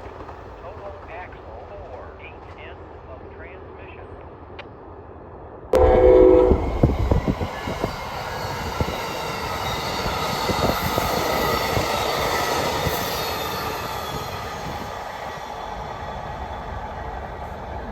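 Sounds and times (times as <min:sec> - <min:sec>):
rumble of train cars: 0:00.0 - 0:17.9
train horn blast: 0:05.8 - 0:08.1.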